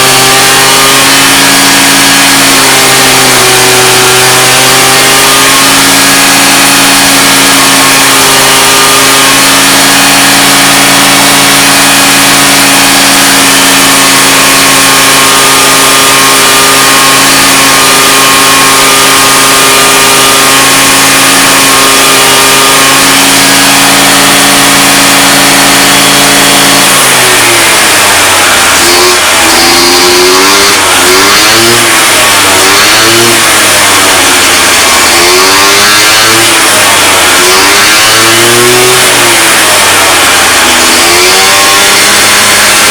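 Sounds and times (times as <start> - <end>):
scooter engine revving: 0.0 - 42.9.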